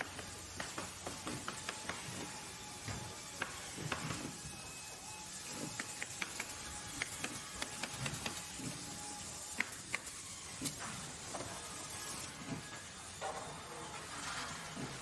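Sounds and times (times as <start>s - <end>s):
sharp mechanical clicks and knocks: 5.7s - 8.6s.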